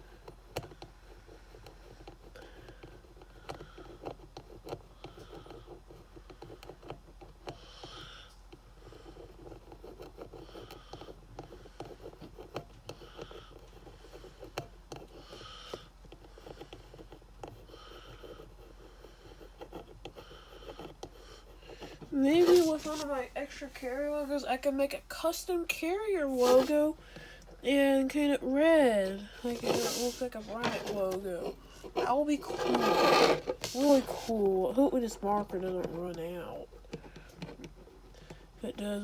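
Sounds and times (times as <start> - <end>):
pen scratching and squeaking: 8.8 - 23.3, 26.2 - 27.0, 27.6 - 38.0.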